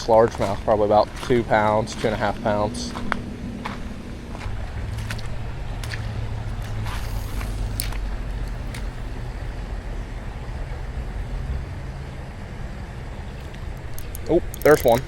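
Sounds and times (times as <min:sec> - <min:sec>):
low rumble with hiss: 0:00.0 - 0:15.0
light clicks: 0:13.4 - 0:15.0.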